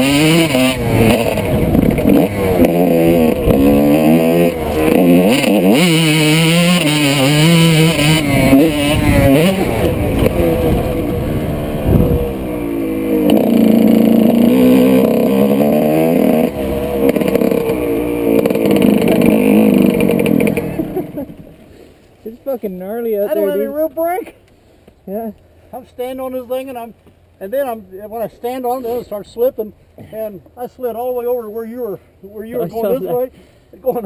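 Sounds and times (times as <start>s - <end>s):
motocross bike engine revving: 0.0s - 21.6s.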